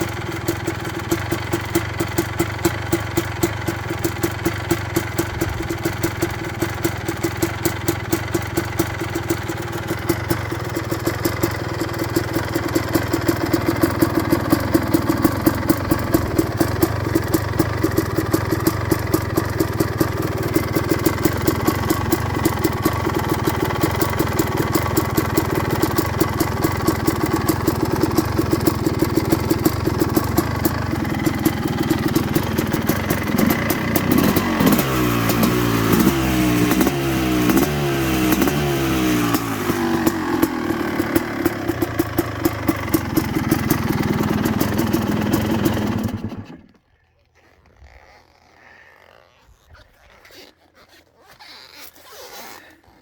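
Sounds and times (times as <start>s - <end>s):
two-stroke motorcycle engine idling: 0.0s - 46.8s.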